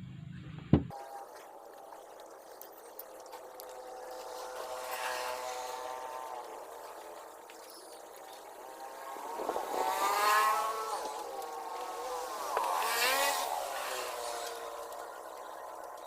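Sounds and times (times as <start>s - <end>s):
motorcycle engine passing by: 3.5s - 16.0s.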